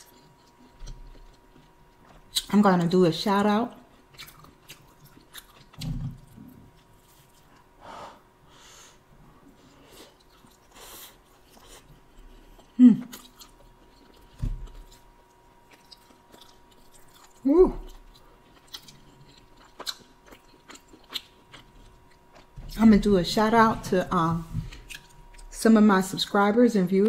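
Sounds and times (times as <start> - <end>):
chewing with mouth clicks: 0.0 - 2.6, 3.8 - 7.7, 9.6 - 22.6, 24.7 - 25.6.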